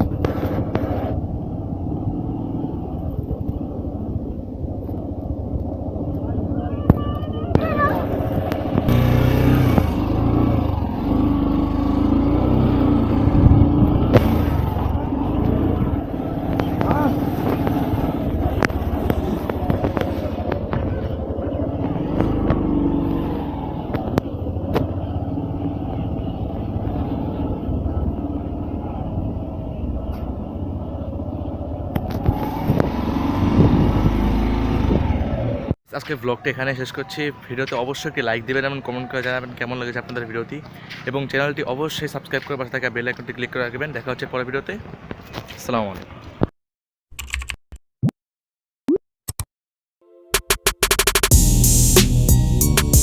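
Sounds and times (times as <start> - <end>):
motorcycle engine: 7.6 - 35.6, 50.4 - 53.0
sharp click: 50.4 - 51.3.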